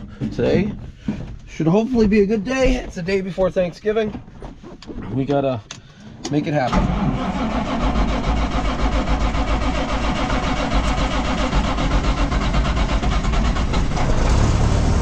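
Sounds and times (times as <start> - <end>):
diesel truck engine idling: 6.9 - 15.0.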